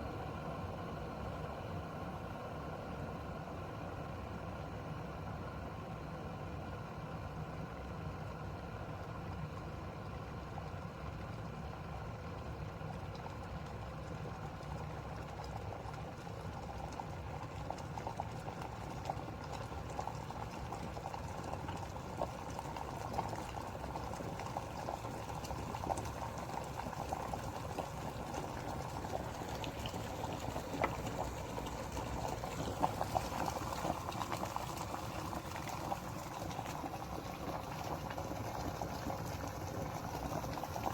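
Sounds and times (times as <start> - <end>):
electric kettle humming: 13.1 - 40.9
bubbles crackling and popping: 14.5 - 40.9.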